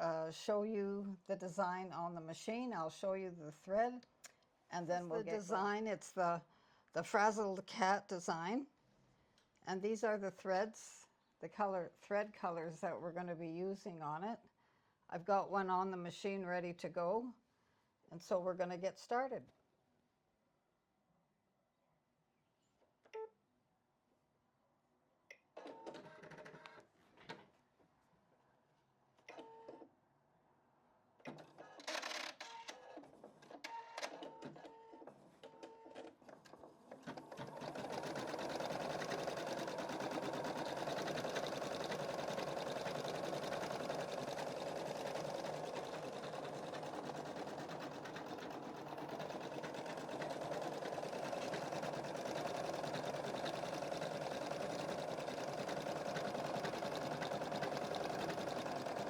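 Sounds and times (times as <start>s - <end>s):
embroidery machine stitching: 31.3s - 59.0s.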